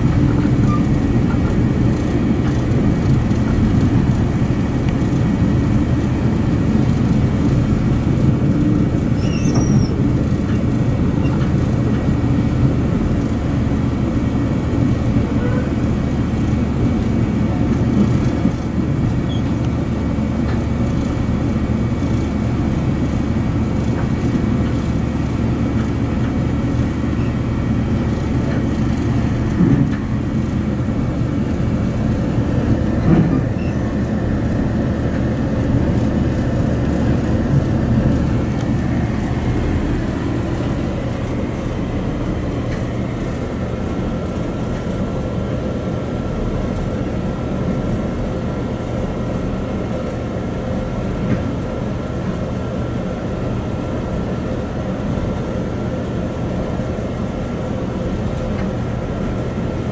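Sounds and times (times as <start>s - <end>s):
train wheels rumbling on rails: 0.0s - 59.9s
train bumps: 28.4s - 30.6s, 32.8s - 34.1s.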